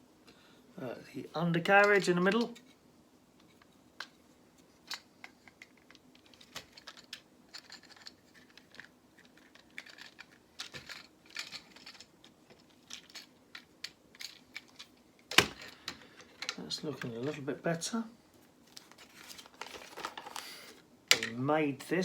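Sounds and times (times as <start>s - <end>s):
lego pieces clicking: 4.9s - 15.5s.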